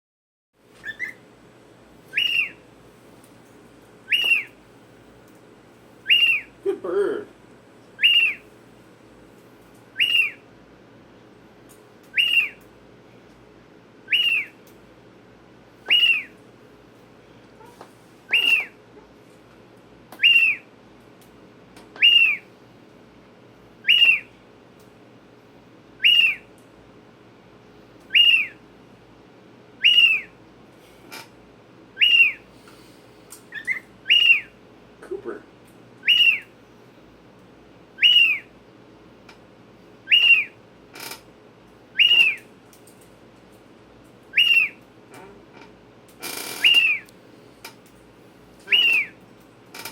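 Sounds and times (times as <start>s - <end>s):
cockatiel whistled calls: 0.8s - 1.2s, 2.1s - 2.6s, 4.1s - 4.6s, 6.0s - 6.5s, 8.0s - 8.4s, 10.0s - 10.4s, 12.1s - 12.6s, 14.1s - 14.6s, 15.8s - 16.4s, 18.3s - 18.8s, 20.2s - 20.7s, 22.0s - 22.5s, 23.8s - 24.3s, 26.0s - 26.5s, 28.1s - 28.6s, 29.8s - 30.3s, 32.0s - 32.4s, 33.5s - 34.6s, 36.0s - 36.5s, 38.0s - 38.5s, 40.1s - 40.6s, 41.9s - 42.5s, 44.3s - 44.8s, 46.5s - 47.1s, 48.7s - 49.2s.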